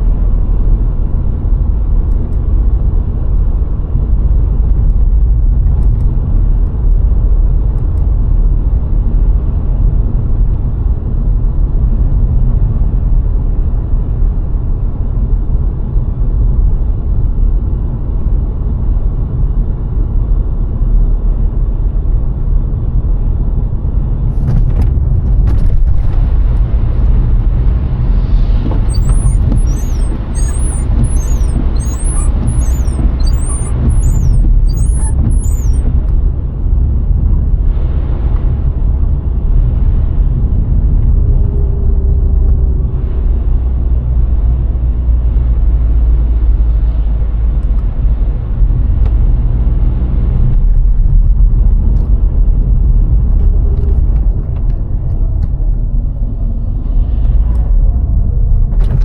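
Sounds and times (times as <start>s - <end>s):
car engine and tyre rumble: 0.0s - 59.0s
faint high chirping: 28.9s - 35.8s.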